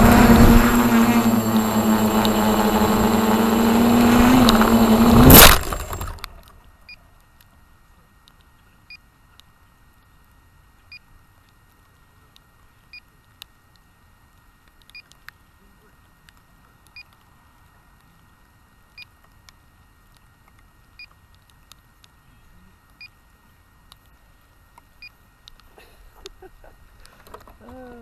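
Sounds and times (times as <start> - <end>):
loud crack: 0.0 - 6.5
model helicopter rotor whine: 0.0 - 6.6.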